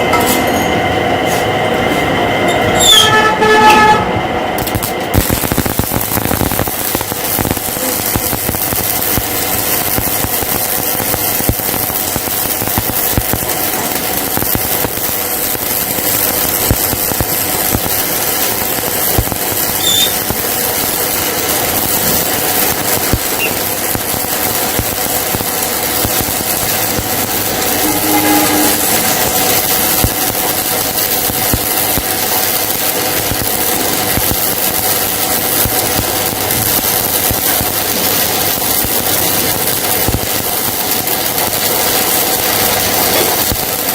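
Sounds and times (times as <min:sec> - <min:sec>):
sharp crackles: 0:04.6 - 0:43.9
power tool hissing on metal: 0:04.7 - 0:43.9.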